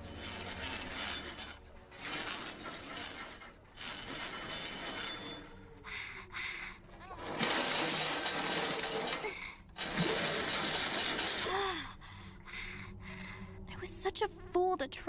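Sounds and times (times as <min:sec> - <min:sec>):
crashing and clattering: 0:07.0 - 0:11.5.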